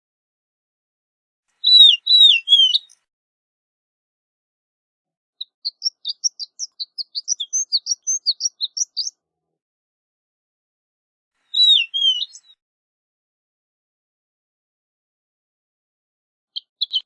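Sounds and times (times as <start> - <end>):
lark singing: 1.6 - 3.0, 5.4 - 9.2, 11.5 - 12.6, 16.6 - 17.0.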